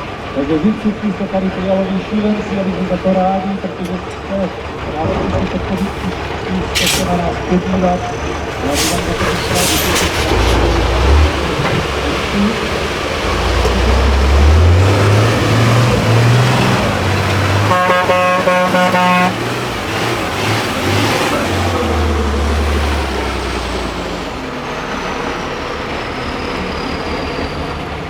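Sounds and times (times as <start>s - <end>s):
truck diesel engine revving: 4.5s - 28.0s
truck horn blast: 16.1s - 20.0s.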